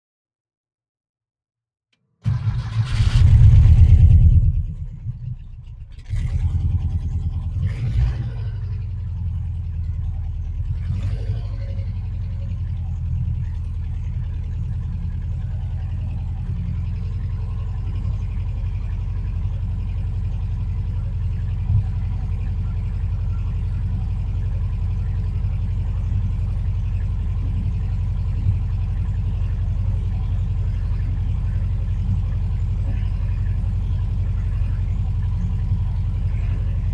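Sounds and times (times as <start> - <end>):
engine cranking: 2.2 - 8.8
engine revving and idling: 2.2 - 36.9.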